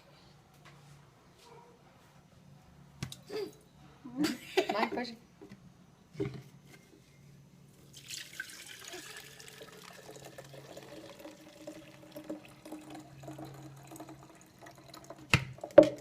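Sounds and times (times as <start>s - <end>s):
liquid trickling through strainer: 7.9s - 16.0s.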